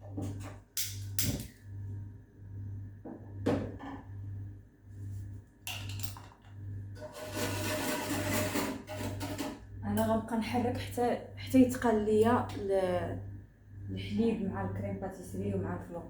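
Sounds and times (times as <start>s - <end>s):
low pulsing hum: 0.0s - 5.5s, 9.6s - 16.0s
utensil scraping saucepan: 7.0s - 9.6s.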